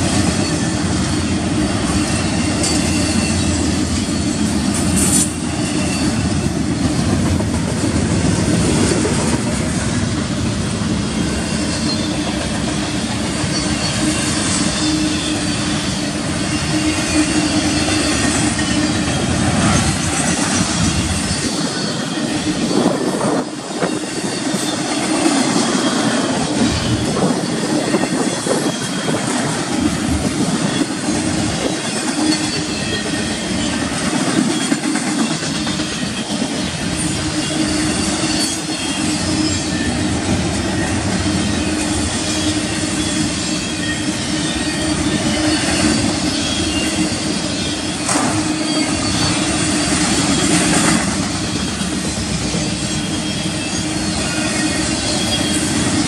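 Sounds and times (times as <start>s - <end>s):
train wheels rumbling on track: 0.0s - 56.0s
faint high wheel squeal: 0.3s - 7.1s, 11.4s - 29.5s, 30.3s - 50.7s, 51.3s - 56.0s.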